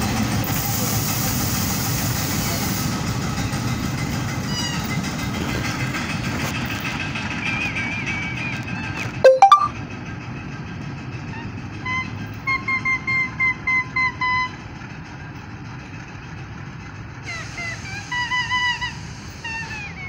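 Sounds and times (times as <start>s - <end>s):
freight wagons rumbling on track: 0.0s - 9.2s, 9.8s - 20.0s
short high tones: 9.3s - 9.7s.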